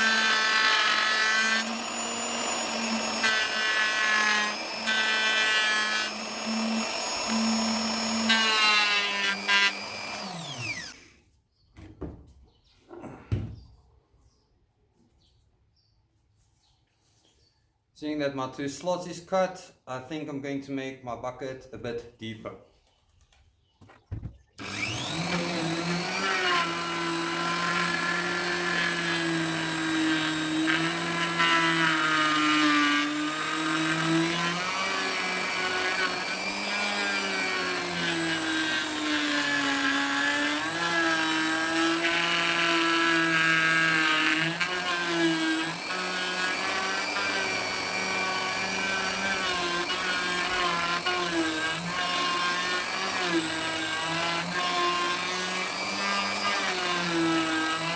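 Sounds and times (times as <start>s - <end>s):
wood router cutting: 0.0s - 11.1s, 24.6s - 57.9s.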